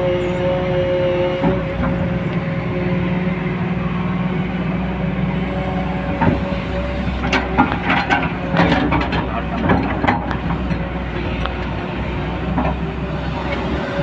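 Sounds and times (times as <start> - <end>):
backhoe diesel engine running: 0.0 - 14.0
metallic clanks and scrapes: 7.2 - 10.8.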